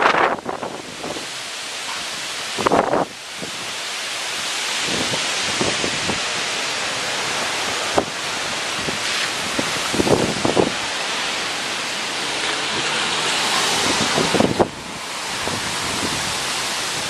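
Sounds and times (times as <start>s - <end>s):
wind buffeting microphone: 0.0s - 1.4s, 4.7s - 6.5s, 7.3s - 17.0s
strong wind gusts roaring: 0.0s - 17.0s.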